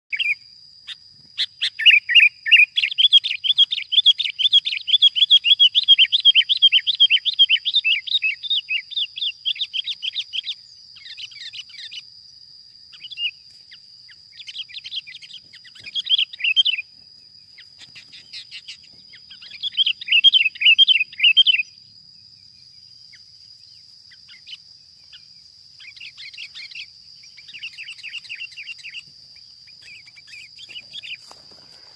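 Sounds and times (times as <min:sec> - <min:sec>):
bird chattering calls: 0:13.0 - 0:16.9, 0:17.5 - 0:21.7, 0:25.8 - 0:29.1.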